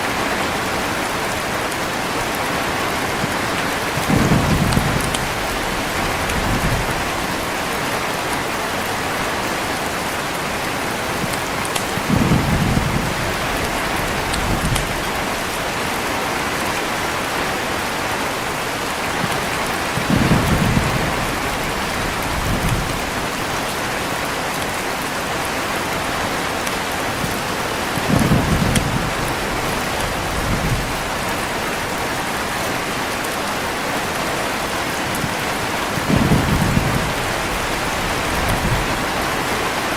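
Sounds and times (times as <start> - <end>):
heavy rain: 0.0 - 39.9
thunder rolling: 3.2 - 8.2, 12.0 - 15.8, 19.8 - 23.4, 28.0 - 31.8, 35.1 - 39.9.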